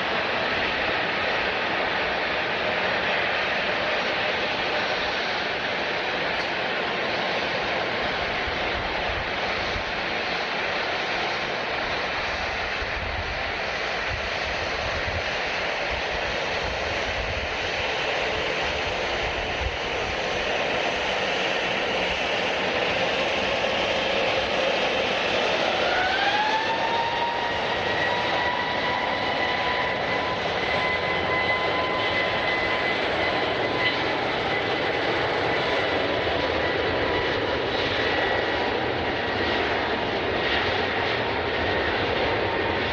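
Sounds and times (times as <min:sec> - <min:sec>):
jet engines roaring: 0:00.0 - 0:42.9
turbine whine rising: 0:17.4 - 0:37.8.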